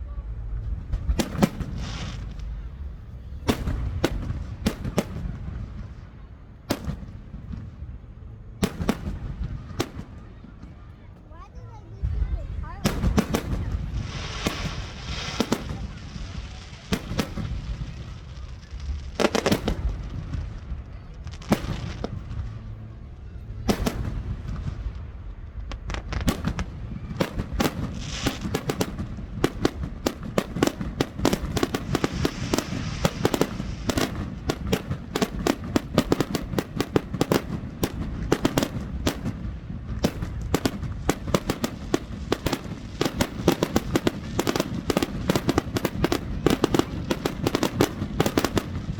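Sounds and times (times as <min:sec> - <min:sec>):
rapid barrage of firework bangs: 0:01.2 - 0:06.0, 0:06.7 - 0:07.7, 0:08.6 - 0:11.0, 0:12.8 - 0:22.7, 0:23.6 - 0:25.1, 0:25.7 - 0:48.9
firework shells bursting: 0:12.9 - 0:16.0, 0:26.2 - 0:48.9.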